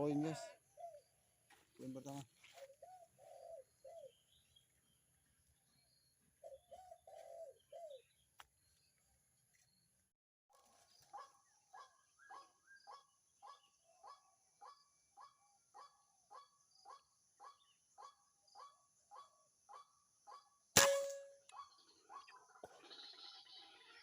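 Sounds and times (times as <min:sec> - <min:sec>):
air rifle shot: 0:20.8 - 0:21.3.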